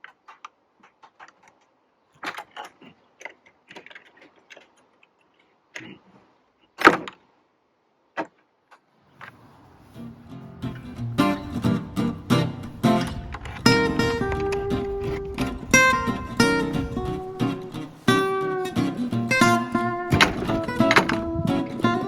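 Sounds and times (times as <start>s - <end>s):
loud sharp knock: 20.1s - 21.2s.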